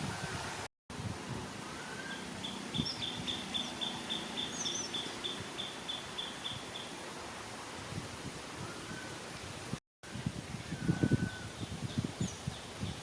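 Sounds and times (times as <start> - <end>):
bird chirps: 1.9 - 7.0.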